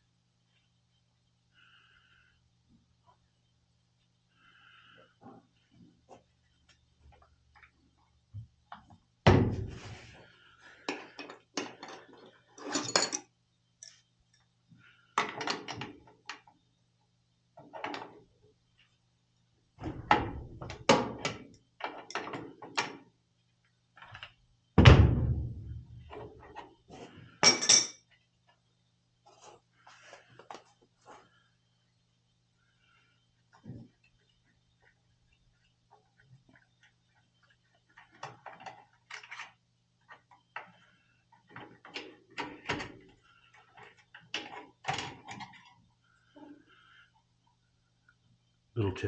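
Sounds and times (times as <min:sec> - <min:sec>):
metal tools clanking: 0:12.6 - 0:13.2.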